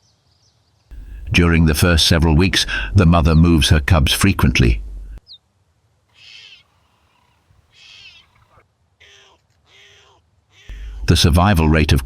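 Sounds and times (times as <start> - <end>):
cheetah cubs chirping: 6.1 - 10.9.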